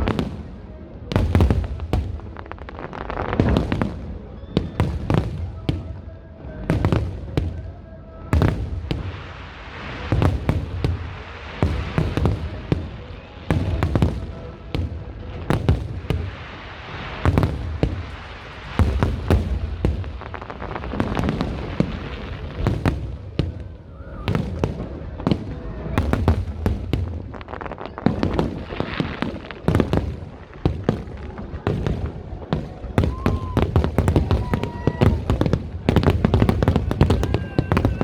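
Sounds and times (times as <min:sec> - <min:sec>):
fireworks bangs: 0:00.0 - 0:38.0
fireworks crackle: 0:00.0 - 0:38.0.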